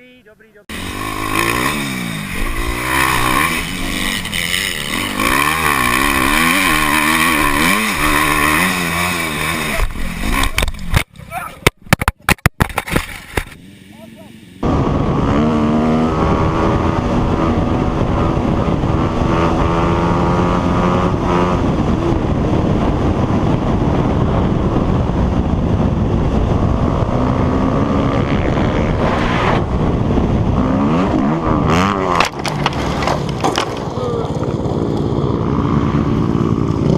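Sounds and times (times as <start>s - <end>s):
motorbike engine at speed: 0.7s - 36.9s
wind buffeting microphone: 14.6s - 36.9s.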